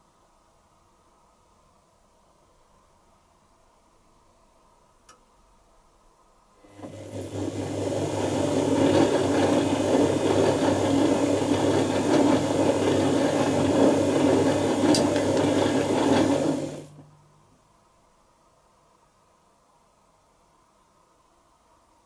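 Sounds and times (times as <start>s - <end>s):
washing machine rushing noise: 6.7s - 17.1s.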